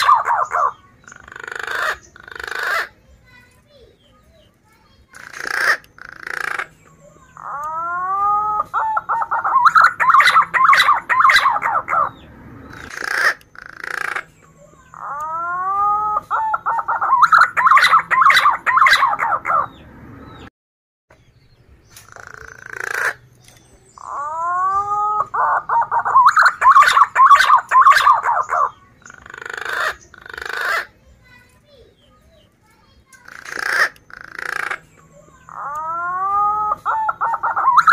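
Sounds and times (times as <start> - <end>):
pigeon whistling and trilling: 0.0 - 0.7, 5.6 - 12.2, 12.8 - 19.8, 22.2 - 30.9, 33.6 - 37.9.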